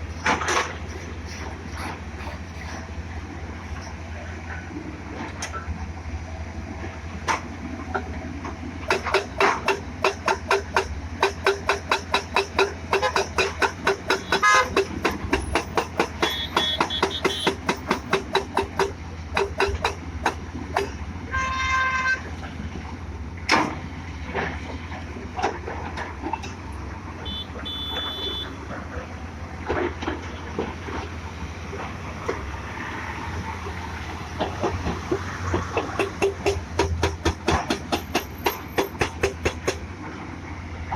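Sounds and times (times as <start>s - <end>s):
excavator engine rumble: 0.0s - 40.9s
vehicle horn honking: 14.2s - 14.7s, 16.2s - 17.6s, 21.3s - 22.3s, 27.2s - 28.6s.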